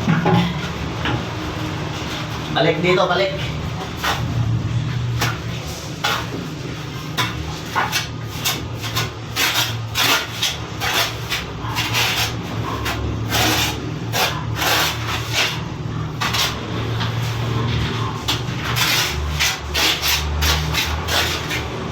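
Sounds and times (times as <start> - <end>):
trowel scraping mortar: 5.1 - 21.9.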